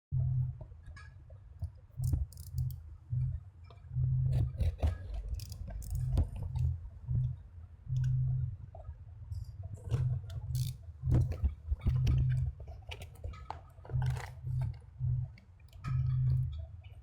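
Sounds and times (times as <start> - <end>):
pulsing low hum: 0.1 - 0.8, 1.6 - 17.0
clicks and taps of small parts: 1.6 - 2.8, 4.4 - 6.7, 9.9 - 14.8.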